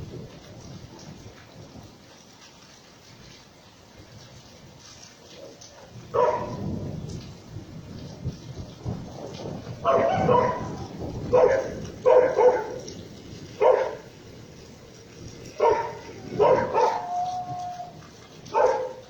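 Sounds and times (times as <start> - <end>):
rain hissing: 0.0 - 19.0
dog barking: 5.8 - 6.7, 9.8 - 14.2, 15.5 - 19.0.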